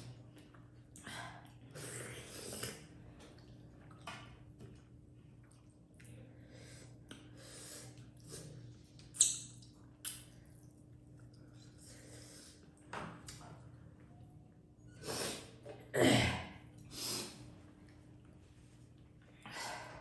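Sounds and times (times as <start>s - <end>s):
faint steady hum: 0.0s - 20.0s
chewing and mouth sounds: 2.5s - 6.3s, 7.0s - 11.7s.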